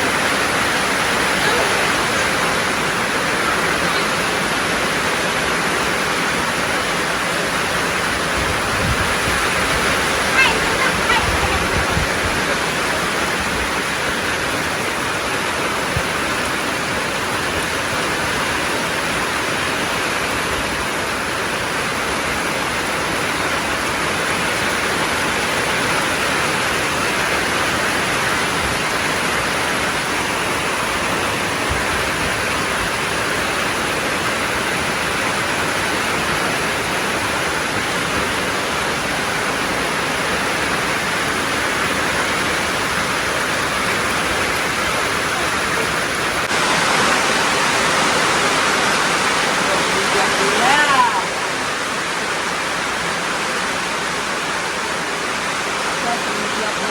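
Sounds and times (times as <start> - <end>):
heavy rain falling: 0.0 - 56.9.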